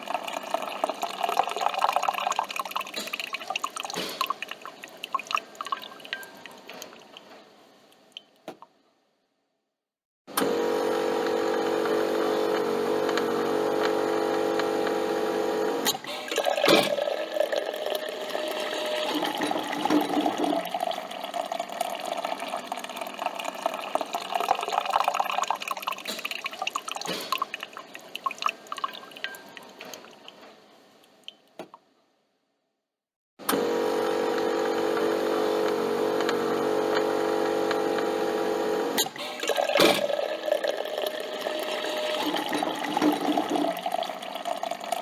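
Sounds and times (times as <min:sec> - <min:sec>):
coffee machine humming: 0:10.4 - 0:25.8, 0:33.4 - 0:45.0
liquid gurgling and splashing: 0:15.9 - 0:29.2, 0:39.0 - 0:45.0.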